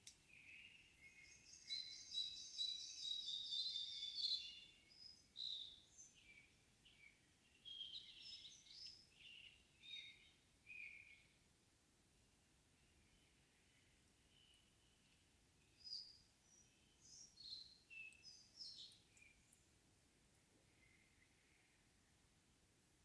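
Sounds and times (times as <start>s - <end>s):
songbirds singing: 0.0s - 11.5s, 12.8s - 19.8s, 20.6s - 22.2s
bird calls and trills: 0.3s - 11.4s, 12.8s - 19.7s.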